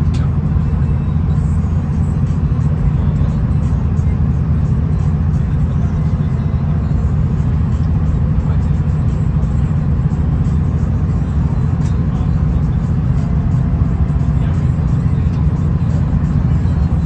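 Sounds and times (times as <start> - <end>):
faint light ticks: 0.0 - 0.3
railcar engine and wheels rumbling: 0.0 - 17.0.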